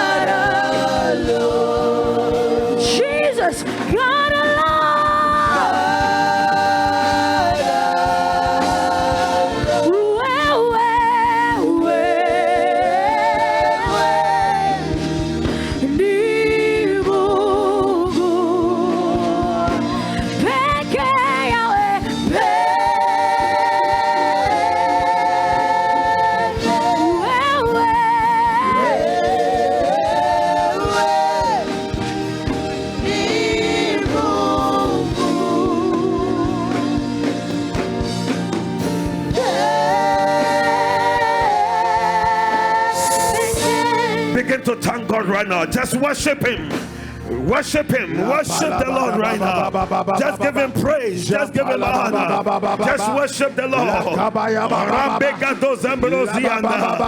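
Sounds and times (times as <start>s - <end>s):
instrumental accompaniment: 0.0s - 51.6s
person singing with vibrato: 39.3s - 50.7s.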